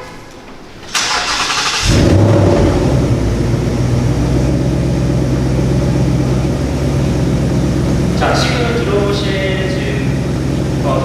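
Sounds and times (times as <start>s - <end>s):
engine starter noise: 0.8s - 3.3s
car engine revving and idling: 1.0s - 11.0s.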